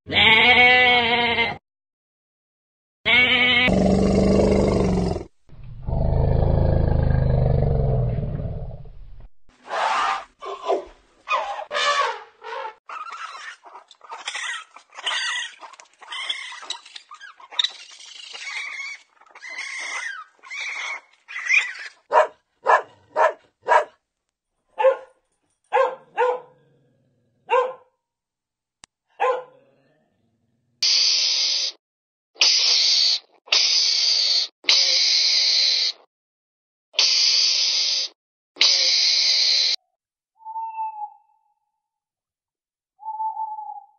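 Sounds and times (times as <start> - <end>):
raccoons chittering and whining: 12.9 - 22.1.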